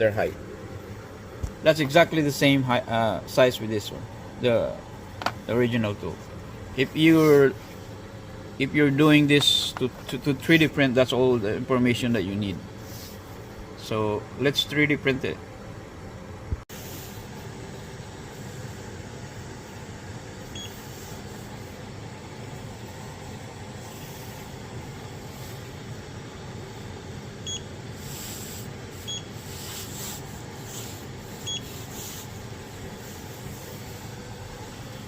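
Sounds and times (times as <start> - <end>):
fan whirring: 0.0 - 35.0
printer movement noise: 4.7 - 10.8, 16.9 - 35.0.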